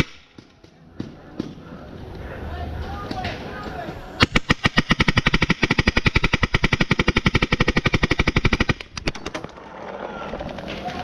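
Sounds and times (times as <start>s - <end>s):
paintball marker firing rapidly: 4.2s - 9.5s.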